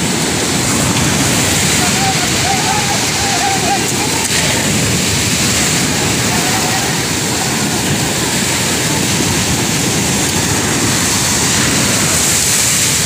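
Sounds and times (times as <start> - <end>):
rough sea: 0.0 - 13.0
wind rushing: 0.0 - 13.0.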